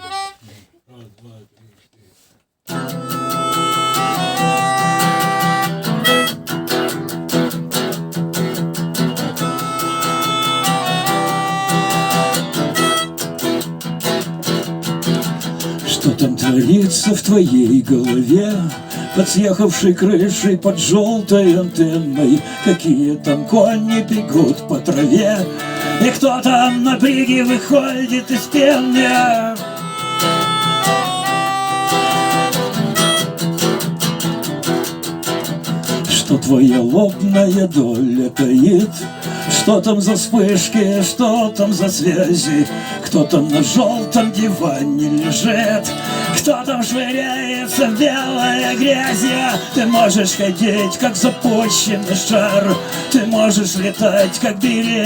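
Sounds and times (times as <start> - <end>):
strummed guitar: 2.7 - 55.0
sustained melody line: 42.0 - 55.0.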